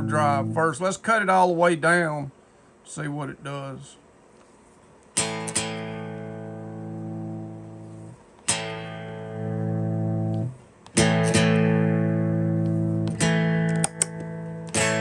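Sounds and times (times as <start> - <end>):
electric guitar chords strummed: 0.0 - 0.8, 5.2 - 15.0.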